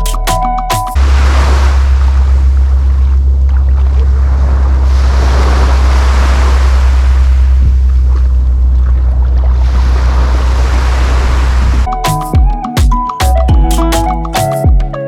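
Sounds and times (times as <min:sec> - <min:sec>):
wind and water rushing: 0:01.0 - 0:11.9
steady low rumble: 0:01.0 - 0:12.0.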